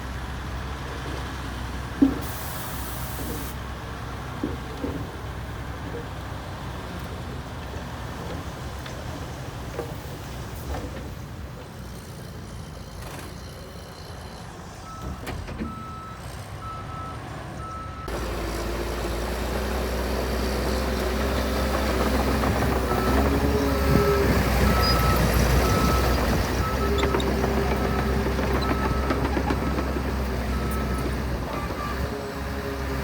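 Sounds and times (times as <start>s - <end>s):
heavy diesel engines running: 0.0s - 33.0s
reversing alarm beeping: 22.9s - 27.2s.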